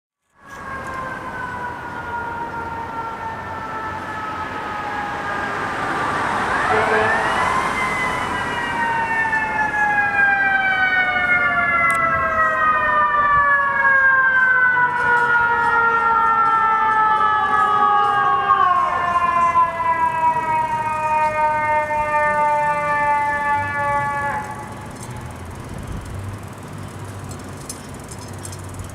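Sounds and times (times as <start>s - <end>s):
mechanical fire sirens winding: 0.2s - 5.7s, 6.4s - 28.9s.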